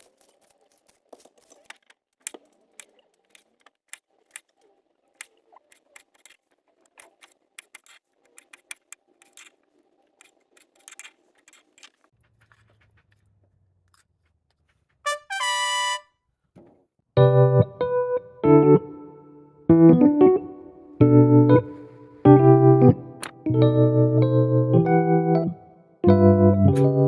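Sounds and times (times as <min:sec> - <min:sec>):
background music with piano: 0:17.2 - 0:27.0.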